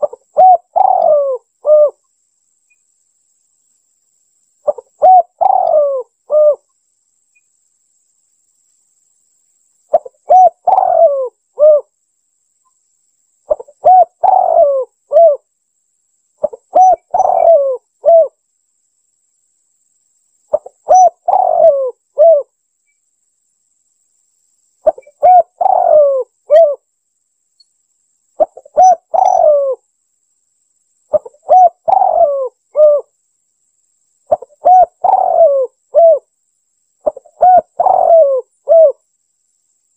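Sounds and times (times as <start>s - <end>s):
dove cooing: 0.0s - 2.0s, 4.6s - 6.6s, 9.9s - 11.9s, 13.5s - 15.4s, 16.4s - 18.4s, 20.5s - 22.5s, 24.8s - 26.8s, 28.4s - 29.8s, 31.1s - 33.1s, 34.3s - 36.3s, 37.0s - 39.0s.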